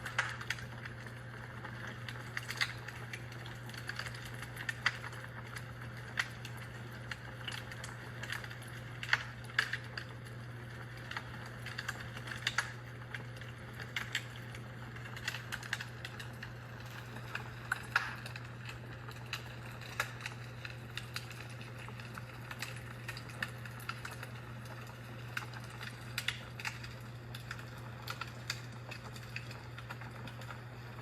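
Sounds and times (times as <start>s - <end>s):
fire crackling in fireplace: 0.0s - 31.0s
steady low hum: 10.3s - 31.0s.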